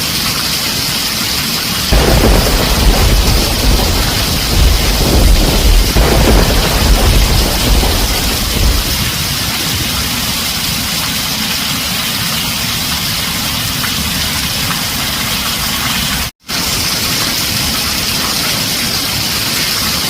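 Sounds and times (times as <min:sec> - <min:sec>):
heavy rain on a tin roof: 0:00.0 - 0:20.0
low thunder rumble: 0:01.9 - 0:10.8.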